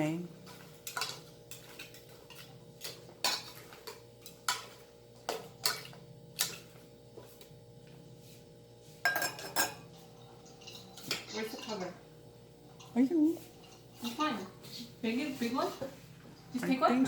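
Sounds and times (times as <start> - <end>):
metal utensil clinking on pot: 9.1 - 9.8, 10.4 - 11.9.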